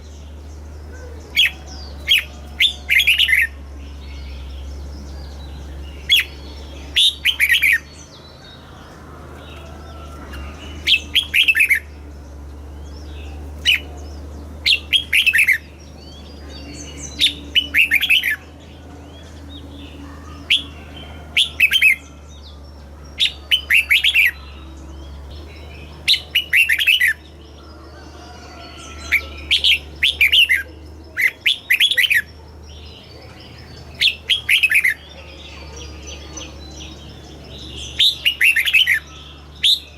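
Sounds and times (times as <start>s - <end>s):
low hum: 0.0s - 31.6s
bird singing warbled phrases: 0.0s - 39.9s.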